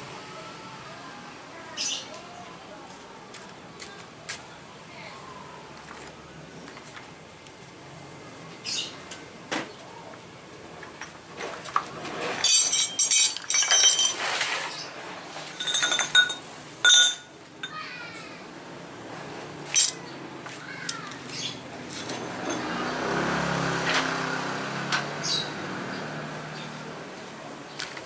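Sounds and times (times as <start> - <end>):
ringing metallic clinks: 12.4 - 14.2, 15.6 - 17.8, 19.8 - 20.0, 22.0 - 22.7
hard objects clinking and rattling: 12.4 - 14.3, 15.6 - 17.8, 19.7 - 20.0.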